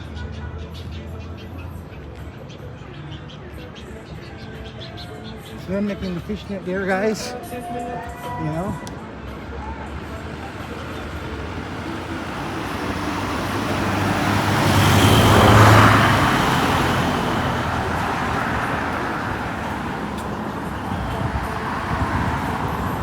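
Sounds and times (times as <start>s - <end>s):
vehicle driving past: 10.0s - 23.0s.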